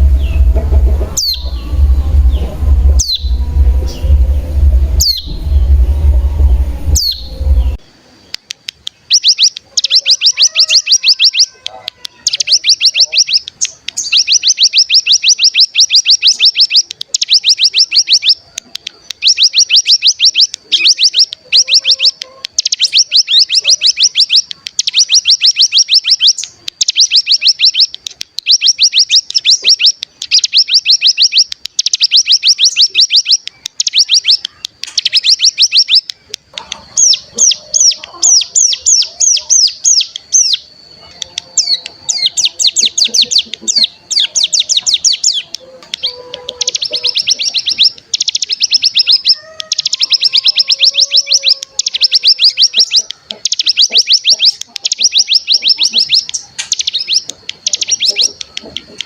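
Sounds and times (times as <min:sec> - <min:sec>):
faint lower bird notes: 0:00.0 - 0:07.9
songbird rapid trill: 0:09.0 - 0:59.0.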